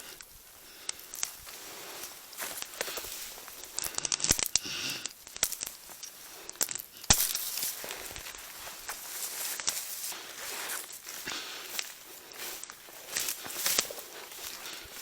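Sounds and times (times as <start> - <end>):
footsteps crunching through snow: 0.3 - 3.9, 7.2 - 15.0
sharp cracks: 2.4 - 9.0.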